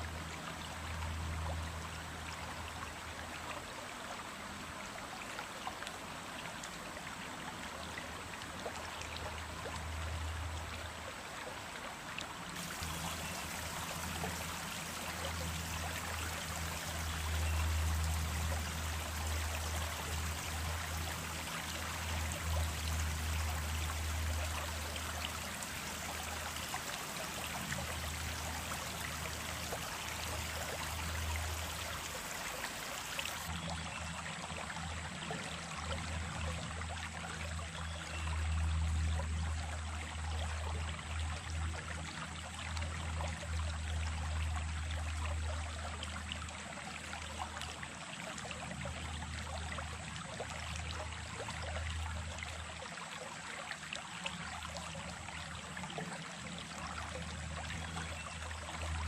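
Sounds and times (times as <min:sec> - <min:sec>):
stream water rushing: 0:00.0 - 0:36.4.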